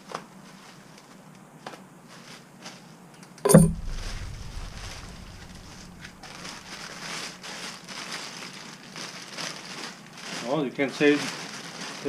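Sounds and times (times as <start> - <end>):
sharp knock: 3.5 - 6.8
plastic wrap crinkling: 4.0 - 12.0.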